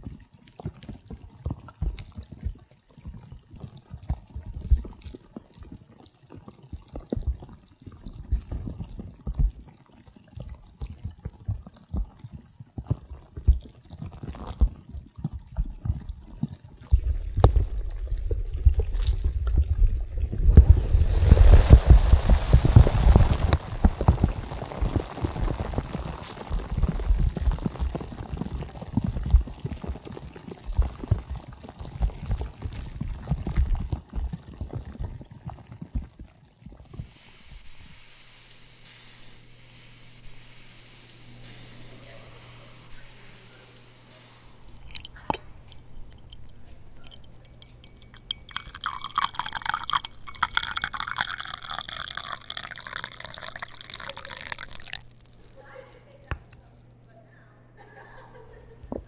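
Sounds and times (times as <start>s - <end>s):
bath water bubbling and splashing: 0.0s - 57.1s
water dripping: 0.0s - 57.2s.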